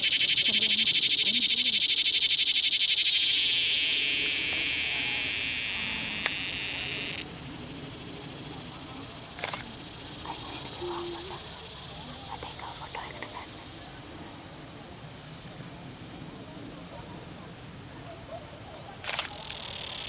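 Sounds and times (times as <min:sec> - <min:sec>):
faint high ticking: 0:00.0 - 0:07.3
cicada buzzing song: 0:00.0 - 0:20.0
sharp click: 0:02.9 - 0:07.2, 0:09.4 - 0:09.7, 0:19.0 - 0:20.0.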